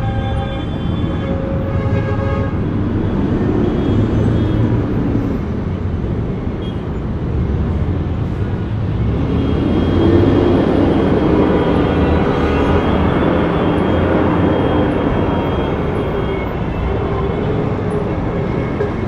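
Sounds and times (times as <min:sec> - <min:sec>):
street traffic: 0:00.0 - 0:19.0
vehicles passing: 0:00.0 - 0:19.0.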